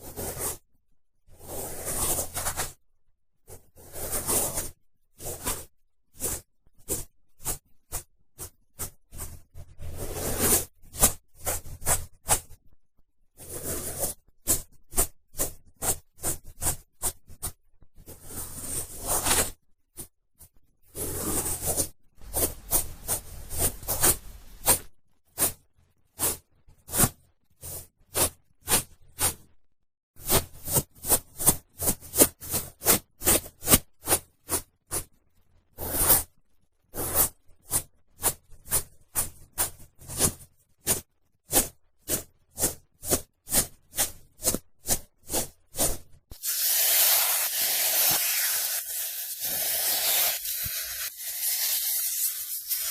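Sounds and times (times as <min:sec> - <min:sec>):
cotton swab scratching in ear: 0:21.0 - 0:25.6, 0:41.5 - 0:52.9.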